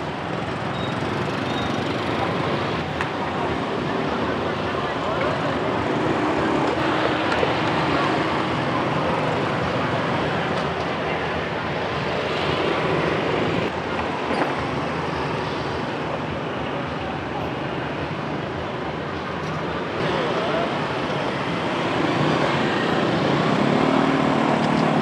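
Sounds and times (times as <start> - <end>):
motorcycles passing: 0.0 - 13.8, 19.9 - 25.0
busy street traffic: 0.0 - 25.0.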